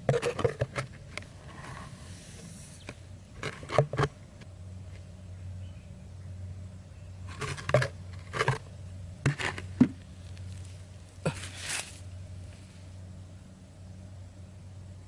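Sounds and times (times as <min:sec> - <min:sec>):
steady low hum: 0:00.0 - 0:15.0
scraping rustling noises: 0:00.1 - 0:02.8, 0:09.3 - 0:13.0.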